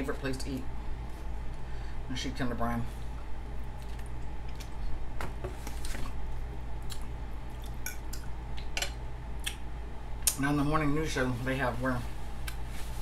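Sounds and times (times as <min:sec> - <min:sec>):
person chewing food: 0:03.2 - 0:05.0, 0:05.8 - 0:08.8.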